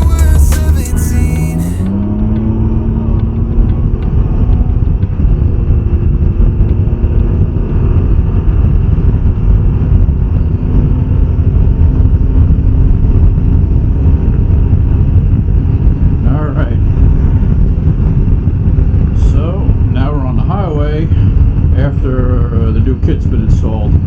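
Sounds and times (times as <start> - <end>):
motorcycle engine cruising: 0.0 - 24.0.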